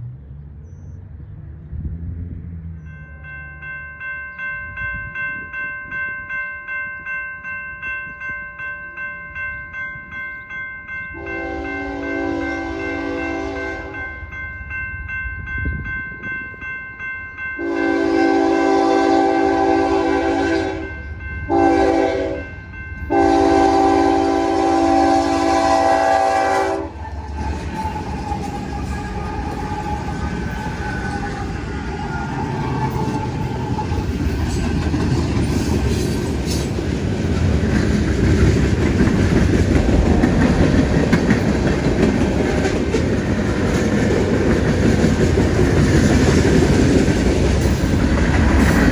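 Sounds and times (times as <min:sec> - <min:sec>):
level crossing bell ringing: 0:02.9 - 0:18.7
train rumble: 0:07.5 - 0:48.9
locomotive air horn blasts: 0:11.2 - 0:14.0, 0:17.6 - 0:31.6
train wheels clacking over rail joints: 0:27.2 - 0:48.9.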